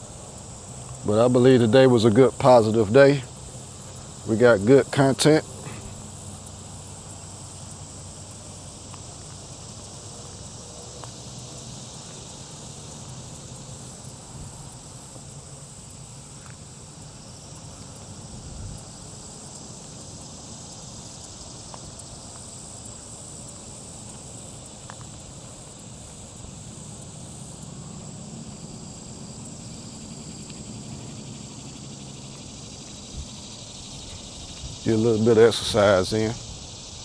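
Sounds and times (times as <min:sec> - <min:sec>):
high-pitched insect chirring: 0:00.0 - 0:37.0
faint ticks: 0:08.7 - 0:13.1, 0:16.4 - 0:18.0, 0:18.7 - 0:26.2, 0:30.2 - 0:31.2.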